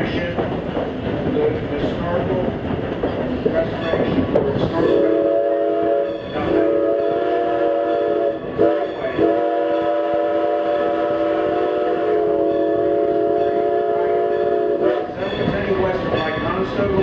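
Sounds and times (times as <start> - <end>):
running train: 0.0 - 17.0
steam whistle chord blasts: 4.9 - 15.2.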